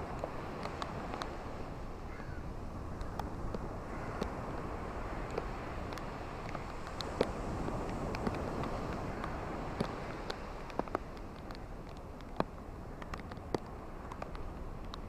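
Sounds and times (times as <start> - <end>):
ocean surf: 0.0 - 15.0
steady rain falling: 0.0 - 15.0
raindrops ticking: 5.3 - 15.0.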